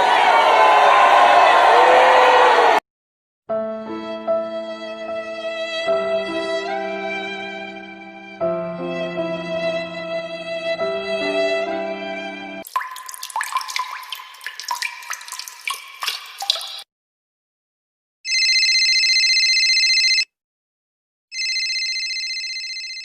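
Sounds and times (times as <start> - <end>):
water drops plinking: 12.6 - 16.8
electronic telephone ringing: 18.3 - 20.3, 21.3 - 23.0.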